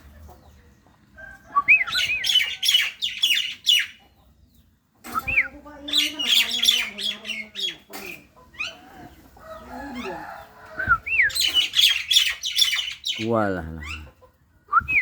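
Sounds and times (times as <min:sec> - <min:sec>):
starling whistled notes: 0:01.5 - 0:02.5, 0:10.8 - 0:12.7
starling chattering and squawking: 0:01.7 - 0:04.0, 0:05.2 - 0:14.4.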